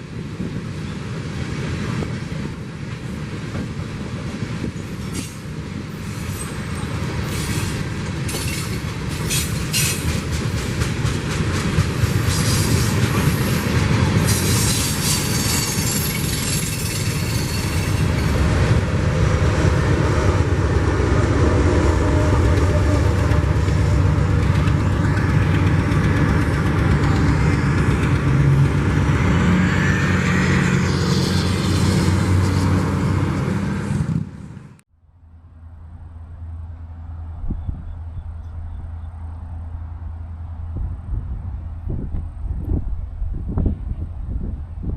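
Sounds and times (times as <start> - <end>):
freight train rumbling past: 0.0 - 44.9
wheels clattering on rails: 1.6 - 18.9, 22.3 - 33.3.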